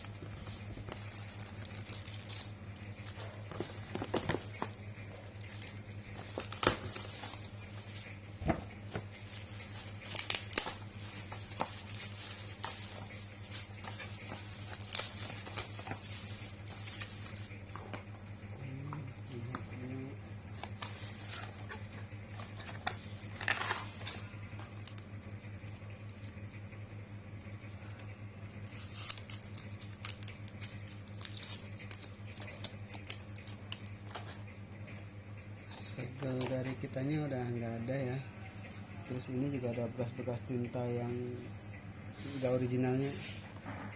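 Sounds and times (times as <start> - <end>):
plastic packaging crinkling: 0.0 - 4.8, 5.4 - 8.1, 8.8 - 17.9, 20.5 - 25.8, 28.7 - 34.3
steady low hum: 0.0 - 43.9.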